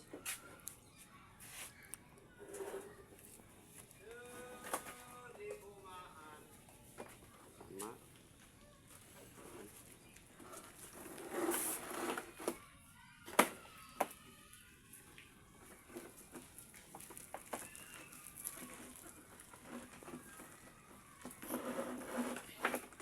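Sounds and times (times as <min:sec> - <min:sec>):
rope rustling: 0:16.4 - 0:20.6.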